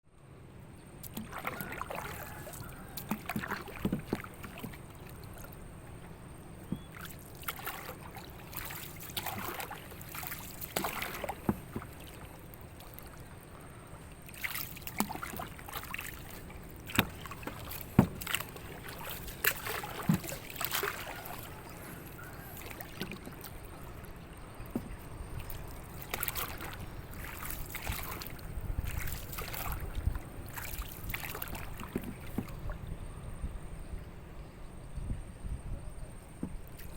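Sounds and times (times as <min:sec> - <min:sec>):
water lapping against boats: 0:00.8 - 0:36.9
wooden knocks and clatters: 0:17.0 - 0:18.4.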